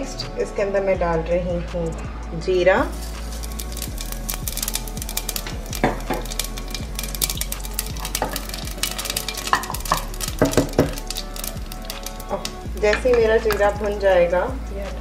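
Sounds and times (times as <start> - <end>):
seeds sizzling and popping in oil: 2.8 - 15.0
wooden spatula scraping metal: 2.9 - 13.8.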